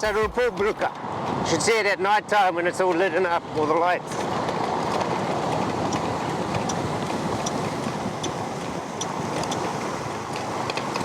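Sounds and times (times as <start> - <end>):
road and wind noise: 0.0 - 11.0
faint high ticks: 5.9 - 6.8.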